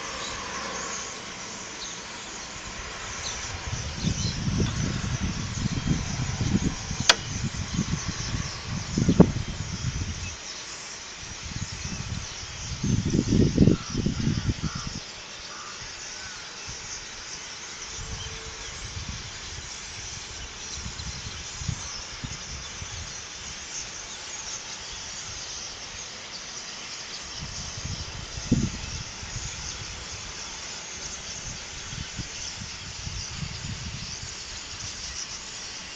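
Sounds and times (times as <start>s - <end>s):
insects chirring: 0.0s - 35.9s
wind buffeting microphone: 2.4s - 10.4s, 11.2s - 15.2s, 17.9s - 24.2s, 27.2s - 35.9s.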